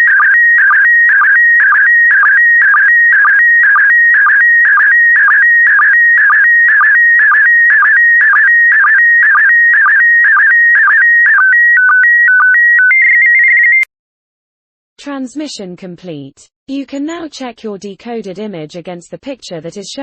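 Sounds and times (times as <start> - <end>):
stepped beeps: 0.1 - 13.9.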